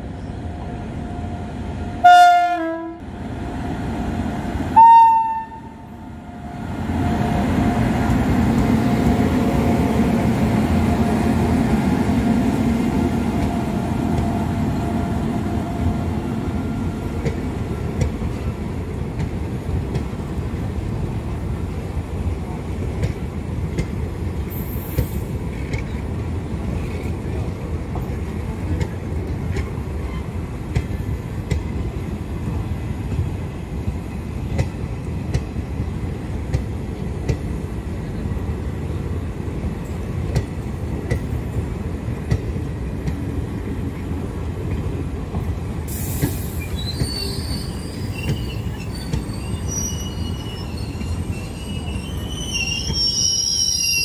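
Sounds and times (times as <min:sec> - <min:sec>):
train coaches rumbling past: 0:00.0 - 0:54.0
metallic squeal from train: 0:45.9 - 0:54.0.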